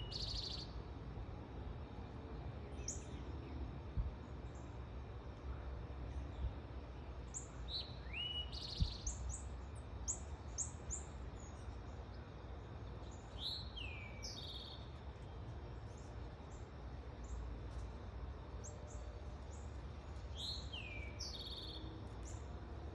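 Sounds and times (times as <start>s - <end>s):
sparrow chirping: 20.3s - 22.4s.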